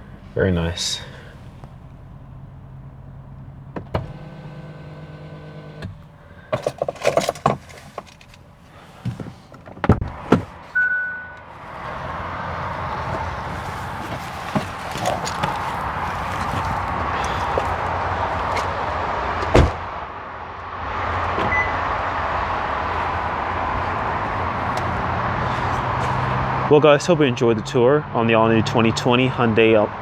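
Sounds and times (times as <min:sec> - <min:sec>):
short high beep: 0:10.8 - 0:11.4.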